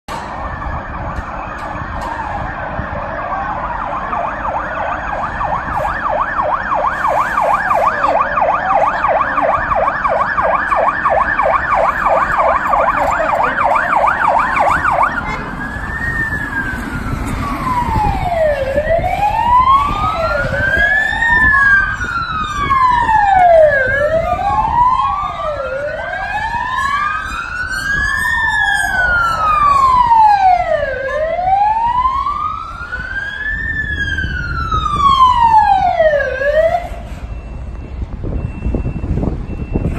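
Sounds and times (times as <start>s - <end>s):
police sirens wailing: 0.1s - 39.9s
vehicle road noise: 0.1s - 39.9s.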